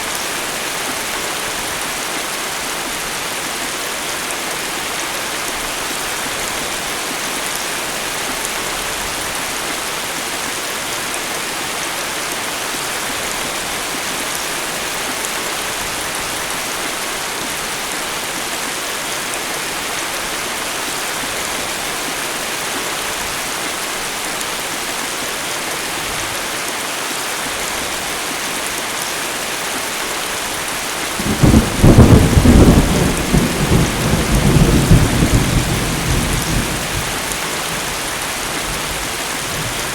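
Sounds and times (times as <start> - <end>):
steady rain falling: 0.0 - 39.9
low thunder rumble: 31.2 - 37.3.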